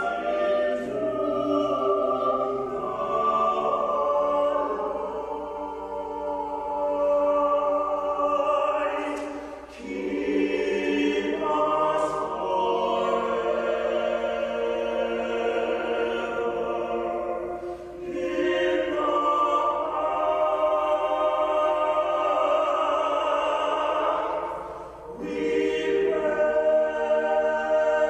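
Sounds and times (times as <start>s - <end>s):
choir singing sustained chords: 0.0s - 28.0s
singers breathing: 17.4s - 18.1s.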